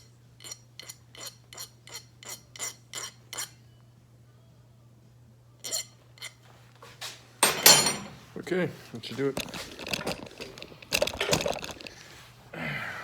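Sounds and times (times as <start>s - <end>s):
hand file on metal: 0.4s - 3.6s.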